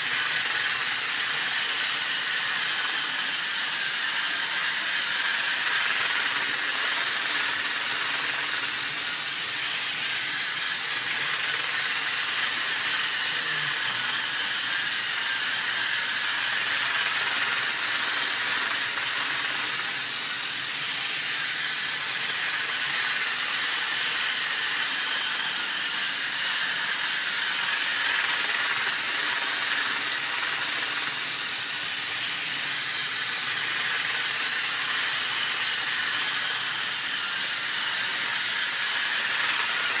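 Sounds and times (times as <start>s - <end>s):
toy train running on track: 0.0s - 40.0s.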